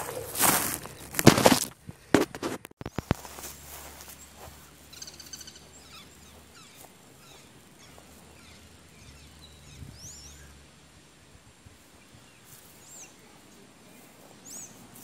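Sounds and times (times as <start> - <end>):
bird chirps: 2.8 - 10.6, 12.0 - 14.9
bird trilling: 4.9 - 10.6.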